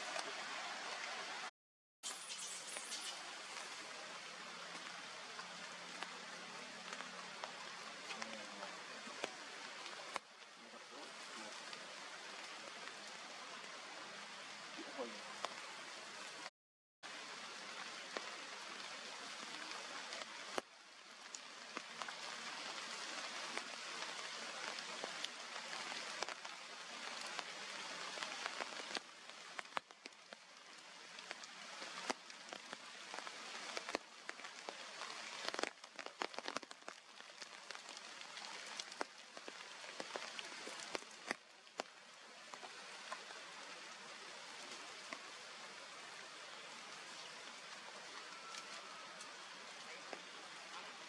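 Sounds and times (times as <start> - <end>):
steady hiss: 2.0 - 16.5, 17.1 - 51.0
sharp ticks and crackles: 24.6 - 42.0.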